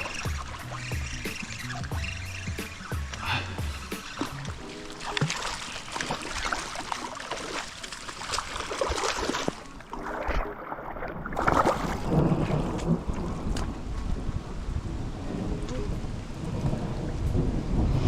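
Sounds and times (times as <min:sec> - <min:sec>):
water splashing and trickling: 0:00.0 - 0:14.2
rain: 0:12.1 - 0:18.0.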